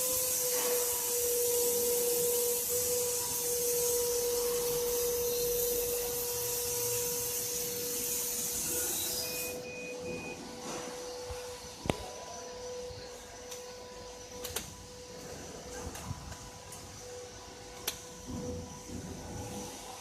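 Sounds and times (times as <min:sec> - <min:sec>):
laser cutting machine humming: 0:00.0 - 0:20.0
short beeps: 0:08.7 - 0:10.8.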